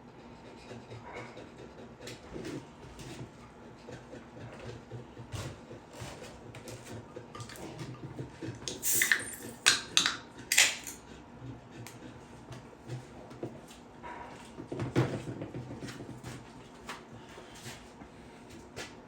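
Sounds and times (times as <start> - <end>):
metal tools clinking on workbench: 8.7 - 11.0.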